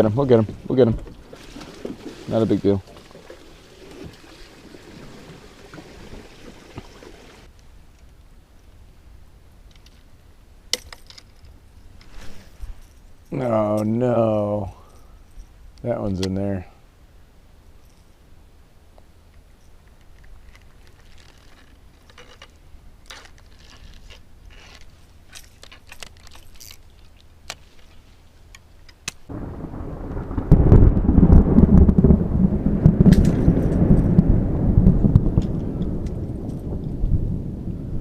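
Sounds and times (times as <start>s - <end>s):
low rumble of thunder: 29.3s - 38.0s.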